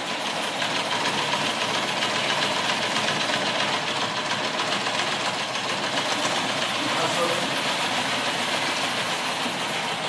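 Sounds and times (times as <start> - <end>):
sewing machine clattering: 0.1 - 9.6.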